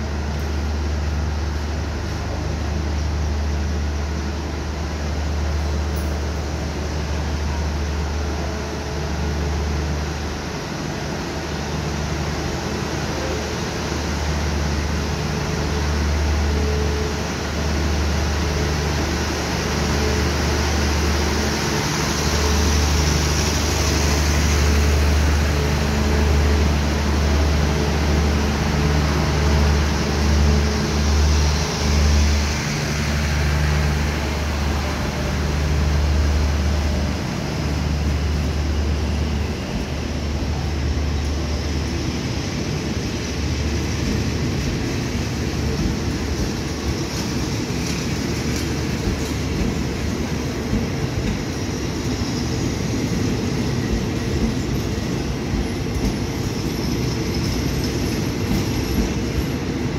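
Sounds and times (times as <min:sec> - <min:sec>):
train coaches rolling past: 0:00.0 - 0:59.9.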